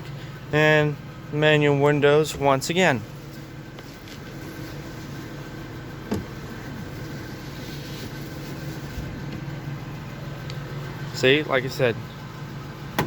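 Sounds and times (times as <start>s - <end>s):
pickup truck engine idling: 0.0s - 13.0s.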